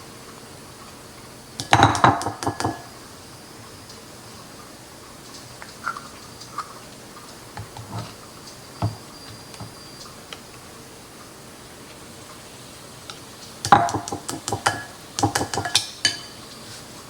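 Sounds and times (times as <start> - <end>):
utensils tapping dishes: 1.6 - 2.9, 13.6 - 16.4.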